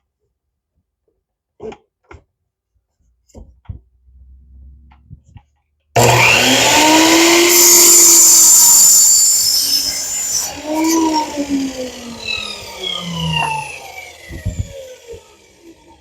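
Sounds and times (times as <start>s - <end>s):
miter saw motor whine: 6.0s - 16.0s
saw blade cutting wood: 6.0s - 16.0s.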